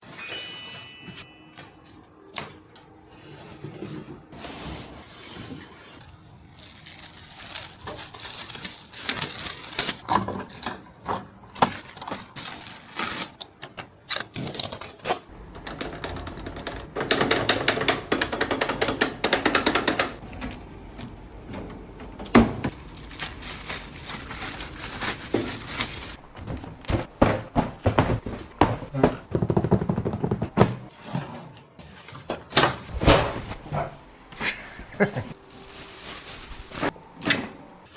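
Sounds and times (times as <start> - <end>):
items clicking and rattling: 7.4 - 30.6.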